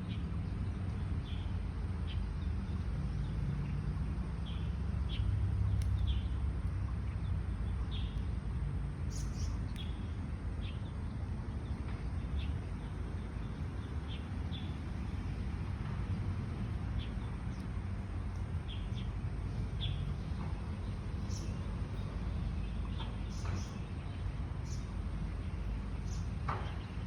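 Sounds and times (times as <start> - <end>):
steady low rumble: 0.0 - 27.0
birds chirping: 9.1 - 16.0, 16.6 - 27.0.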